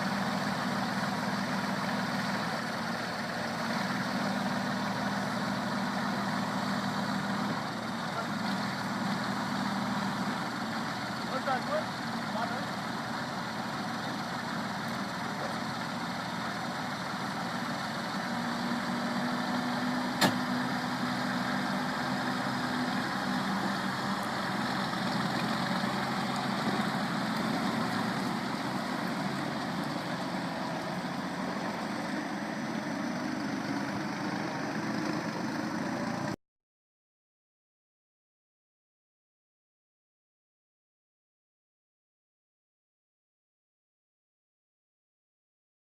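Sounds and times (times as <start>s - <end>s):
tractor engine running: 0.0s - 36.4s
sharp click: 20.2s - 20.4s.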